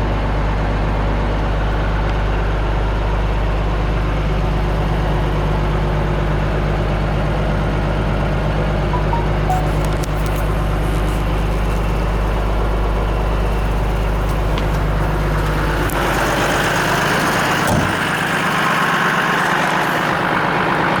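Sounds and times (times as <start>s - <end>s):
diesel engine idling: 9.8s - 21.0s.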